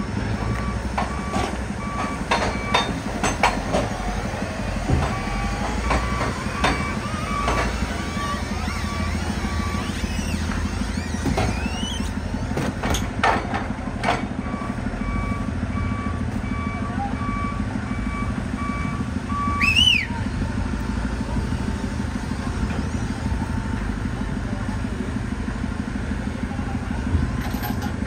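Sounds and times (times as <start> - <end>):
reversing alarm beeping: 0.0 - 12.4, 14.4 - 21.2
forklift engine running: 0.0 - 28.0
short rising squeal: 5.1 - 12.5.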